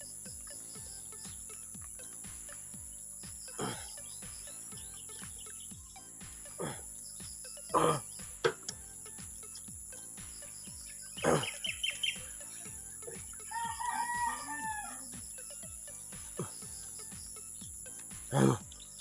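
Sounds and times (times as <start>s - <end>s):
short bird chirps: 10.4s - 12.6s
rooster crowing: 13.5s - 15.1s.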